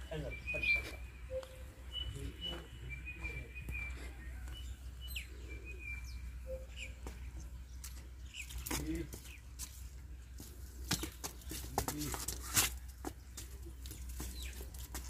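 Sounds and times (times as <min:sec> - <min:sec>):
small birds whistling and chirping: 0:00.0 - 0:09.4, 0:14.2 - 0:14.7.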